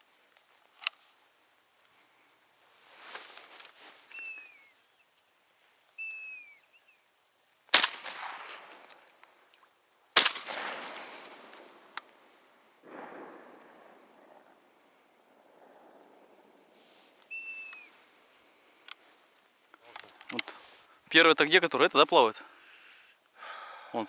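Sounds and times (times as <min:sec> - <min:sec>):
descending whistled bird calls: 0:04.1 - 0:05.1, 0:06.0 - 0:07.1, 0:12.9 - 0:18.4
shotgun shots with rolling echo: 0:07.8 - 0:09.2, 0:10.2 - 0:16.8.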